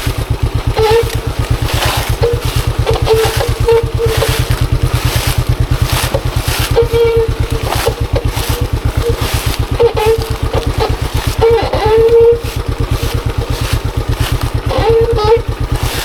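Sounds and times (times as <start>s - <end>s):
motorcycle engine running at low revs: 0.0s - 16.0s.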